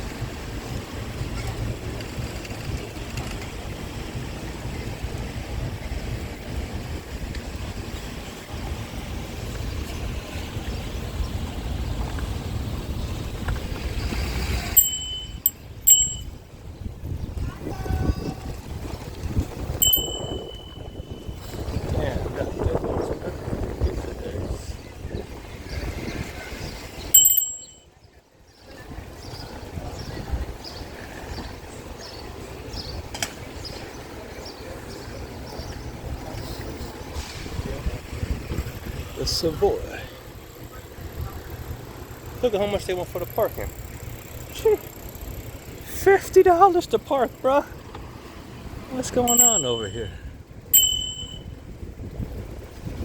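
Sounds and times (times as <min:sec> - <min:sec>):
wind rumbling on microphone: 0:00.0 - 0:27.2, 0:28.6 - 0:39.3, 0:50.1 - 0:53.0
bicycle bell dinging: 0:14.6 - 0:16.4, 0:19.7 - 0:21.7, 0:27.1 - 0:28.0, 0:49.2 - 0:51.8
short high chirps: 0:19.8 - 0:21.5.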